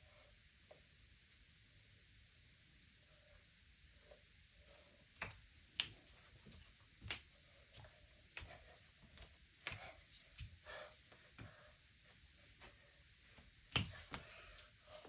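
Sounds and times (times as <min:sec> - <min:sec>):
hands and feet tapping floor: 0:05.2 - 0:14.7.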